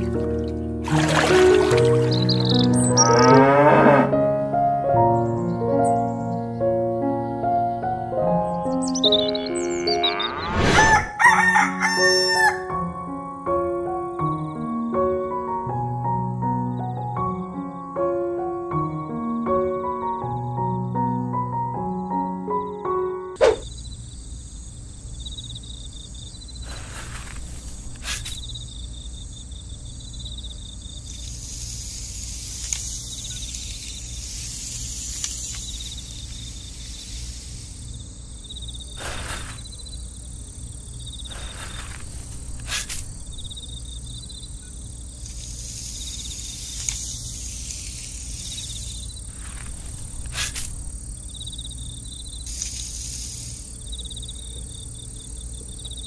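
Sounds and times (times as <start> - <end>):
insects chirping trill: 0.0 - 3.6, 7.2 - 12.8, 21.9 - 56.0.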